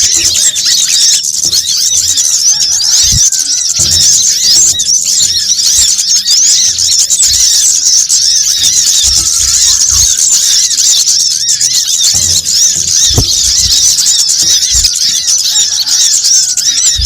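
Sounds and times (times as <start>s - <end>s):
small birds chirping: 0.0s - 17.0s
faint low thumps: 12.1s - 15.2s.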